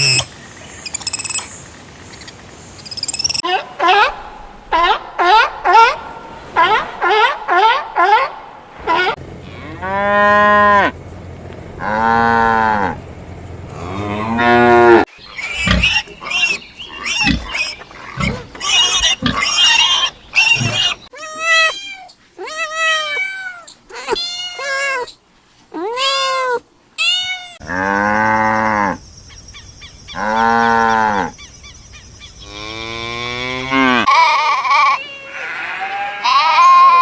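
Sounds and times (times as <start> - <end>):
cows mooing: 3.8 - 16.2, 17.2 - 21.0, 27.6 - 29.0, 30.2 - 31.3, 32.4 - 34.2, 35.4 - 36.8.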